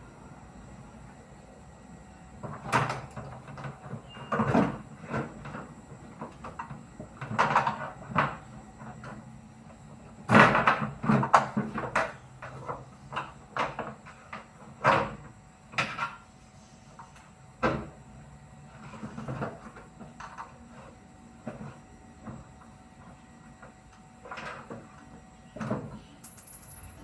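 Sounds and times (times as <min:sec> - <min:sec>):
knocks and clunks on washing machine: 0:02.4 - 0:05.6, 0:10.2 - 0:12.2.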